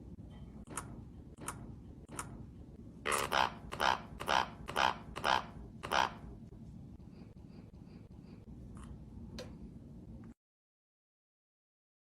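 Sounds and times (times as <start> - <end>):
parrot calling: 3.1 - 6.2.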